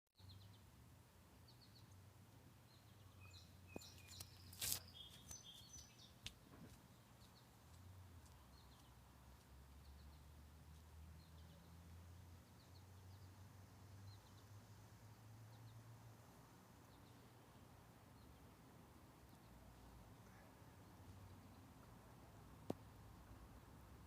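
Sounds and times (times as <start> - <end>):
faint bird chirps: 1.4 - 6.2, 19.2 - 22.0.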